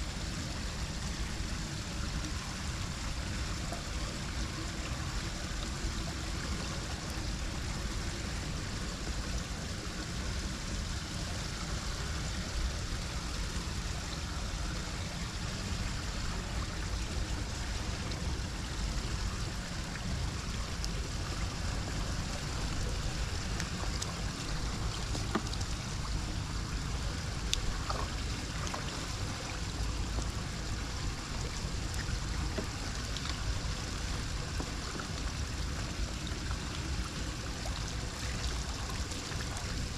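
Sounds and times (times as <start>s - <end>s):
water flowing into a drain: 0.0s - 39.9s.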